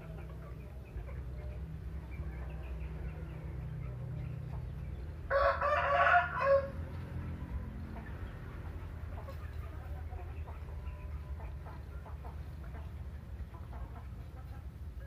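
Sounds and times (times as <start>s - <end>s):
chickens clucking softly: 0.0s - 15.0s
rooster crowing: 5.3s - 6.8s.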